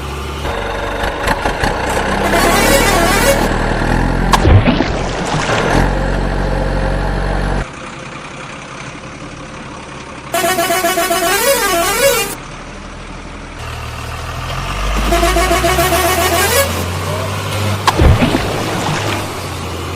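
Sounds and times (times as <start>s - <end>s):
warbling horn tune: 2.2s - 3.6s, 10.4s - 12.4s, 15.0s - 16.9s.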